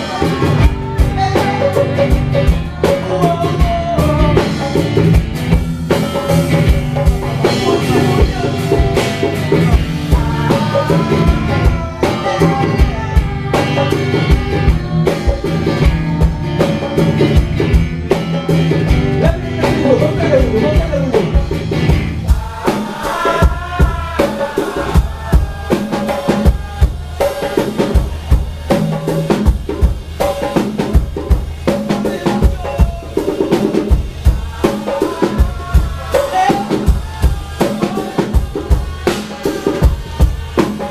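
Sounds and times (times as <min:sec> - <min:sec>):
drum kit dance beat: 0:00.0 - 0:40.9
live dance band playing: 0:00.0 - 0:40.9.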